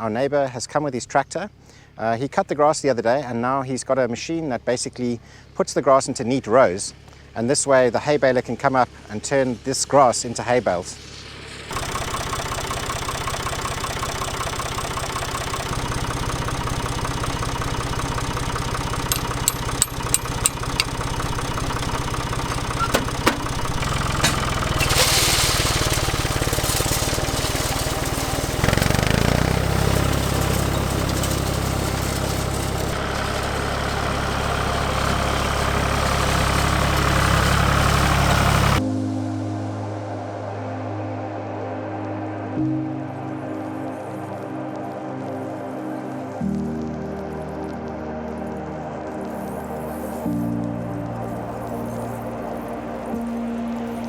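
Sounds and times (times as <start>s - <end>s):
tractor engine running: 11.7s - 38.8s.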